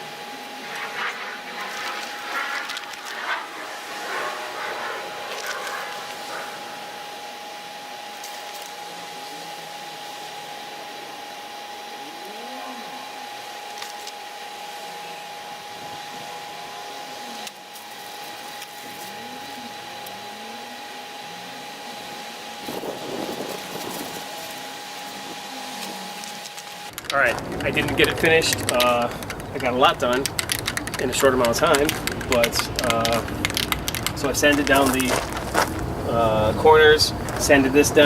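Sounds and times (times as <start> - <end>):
loud rough noise: 0.4 - 7.7
small electric motor whining: 22.6 - 25.9.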